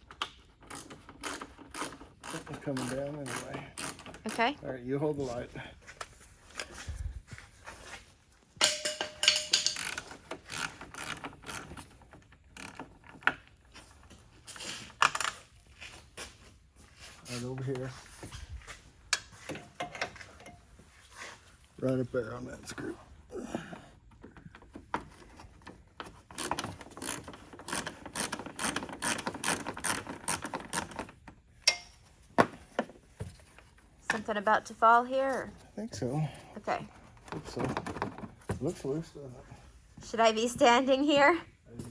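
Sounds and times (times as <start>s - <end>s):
hand ratchet clicking: 8.6s - 11.6s.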